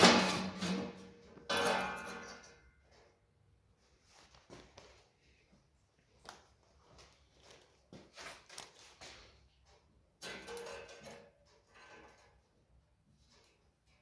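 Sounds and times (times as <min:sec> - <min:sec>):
handling scrapes and knocks: 0:00.0 - 0:03.2.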